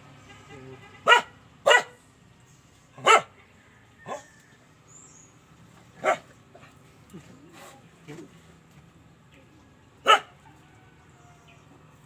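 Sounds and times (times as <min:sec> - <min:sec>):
dog barking: 0:01.0 - 0:02.0, 0:03.0 - 0:03.4, 0:04.0 - 0:04.3, 0:06.0 - 0:06.3, 0:10.0 - 0:10.4.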